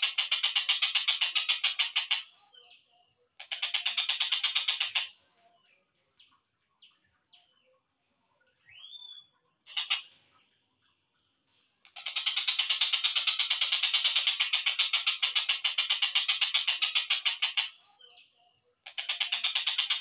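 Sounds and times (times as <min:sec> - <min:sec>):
kingfisher chirps and calls: 0:00.0 - 0:05.2, 0:08.7 - 0:10.2, 0:11.9 - 0:20.0.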